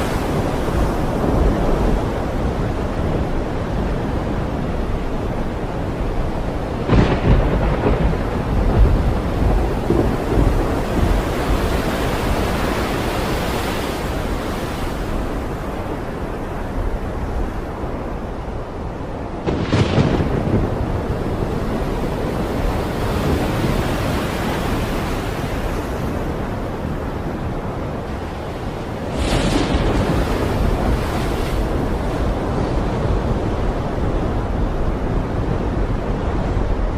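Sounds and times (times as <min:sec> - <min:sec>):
surf roaring: 0:00.0 - 0:36.9
wind roaring: 0:00.0 - 0:36.9
wave crash: 0:28.9 - 0:32.4.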